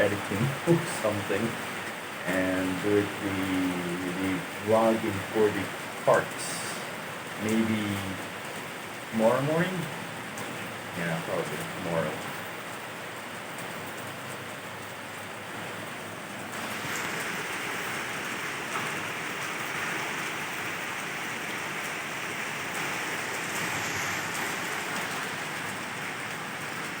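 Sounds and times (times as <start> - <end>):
steady rain falling: 0.0 - 27.0.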